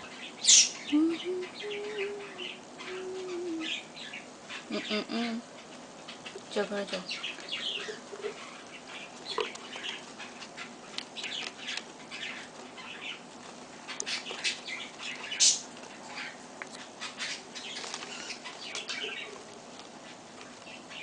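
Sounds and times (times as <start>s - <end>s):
baby birds chirping: 0.0s - 21.0s
wings fluttering: 5.7s - 21.0s.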